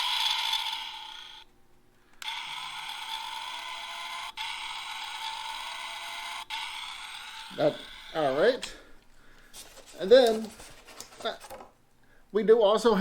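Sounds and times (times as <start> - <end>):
electronic toy sound effects: 0.0 - 1.4, 2.2 - 8.6.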